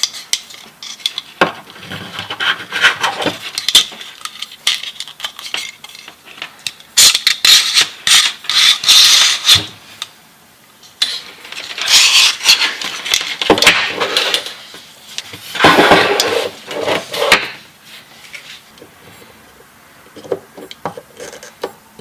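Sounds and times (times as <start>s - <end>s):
scraping and rubbing: 0.0s - 6.4s, 11.0s - 19.4s, 20.1s - 21.7s.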